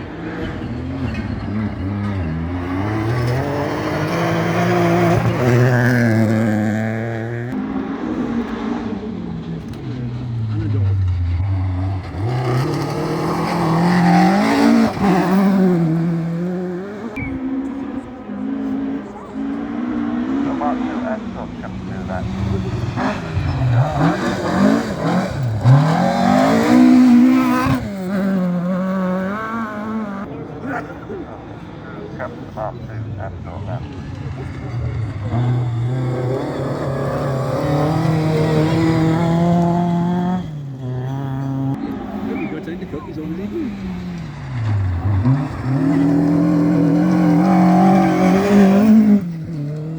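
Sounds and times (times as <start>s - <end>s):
rally car engine passing: 0.0s - 49.9s.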